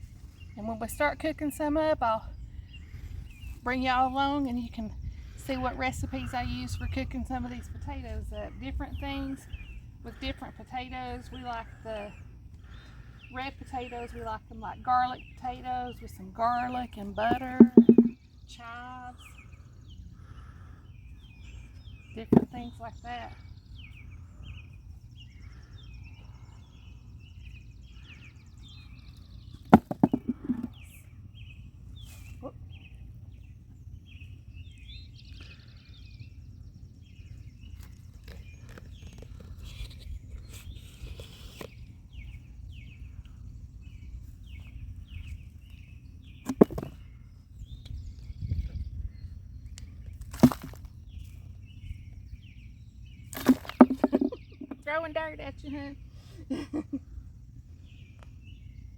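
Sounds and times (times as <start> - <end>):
digging knocks and scrapes: 17.2 - 18.2, 46.4 - 47.0, 50.2 - 50.9, 53.3 - 54.6.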